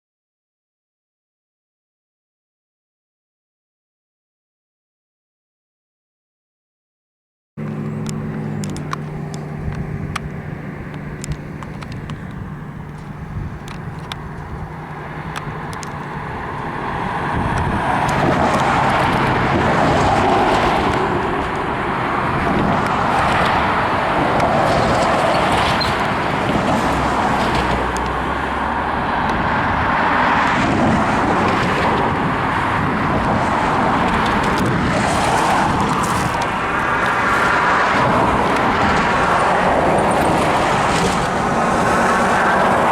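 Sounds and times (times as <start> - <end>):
engine idling hum: 7.6 - 18.3
loud rushing noise: 8.7 - 42.9.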